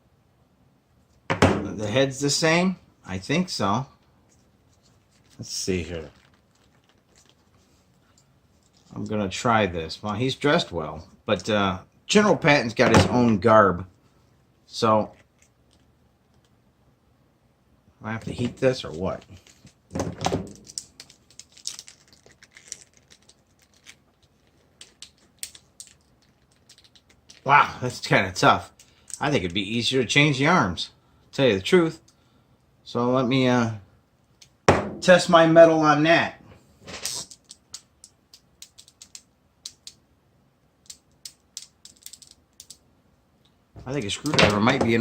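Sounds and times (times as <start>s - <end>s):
plastic parts clicking: 20.5s - 27.4s, 37.0s - 40.0s, 40.8s - 42.8s.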